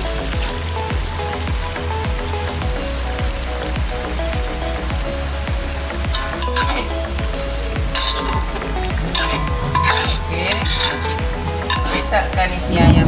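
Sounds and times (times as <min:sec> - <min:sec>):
chicken sizzling in oil: 0:00.0 - 0:12.7
metal ladle scraping a wok: 0:06.1 - 0:07.1, 0:07.9 - 0:12.2.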